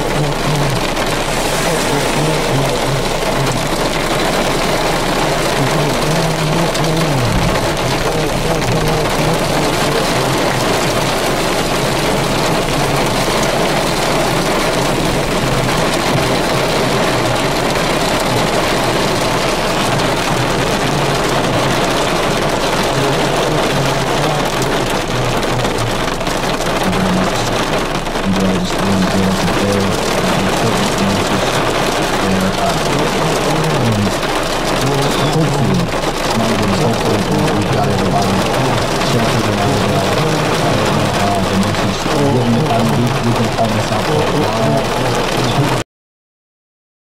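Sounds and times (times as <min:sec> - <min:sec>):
heavy rain pouring: 0:00.0 - 0:45.8
low hum: 0:00.0 - 0:45.8.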